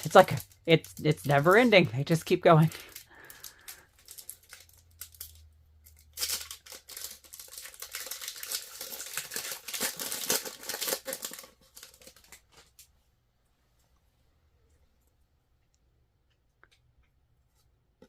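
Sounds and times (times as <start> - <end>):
wrapper tearing and crinkling: 0.0 - 12.8.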